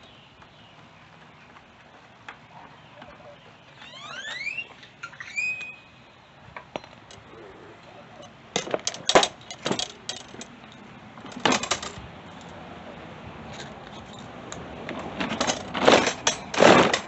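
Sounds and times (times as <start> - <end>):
high squeak: 3.8 - 5.9
metal tools clinking: 7.8 - 12.0, 15.3 - 17.0.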